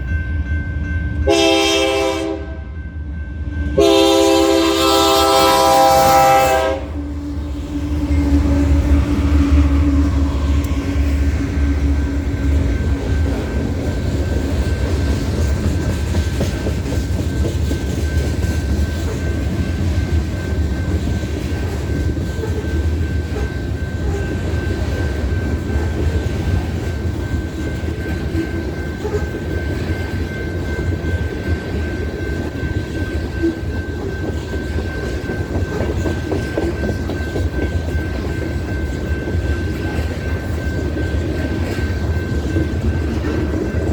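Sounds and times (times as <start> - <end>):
train horn blast: 1.2 - 2.8, 3.8 - 11.0
freight train wheels clacking: 3.4 - 43.9.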